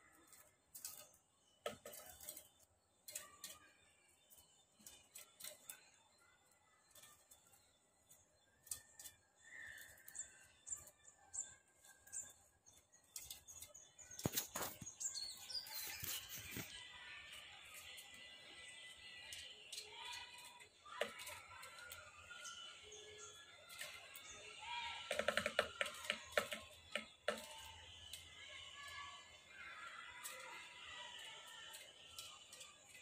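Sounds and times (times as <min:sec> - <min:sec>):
bird chirps: 0:00.0 - 0:33.0
wings fluttering: 0:13.1 - 0:22.6
bird pecking on glass: 0:24.9 - 0:27.8.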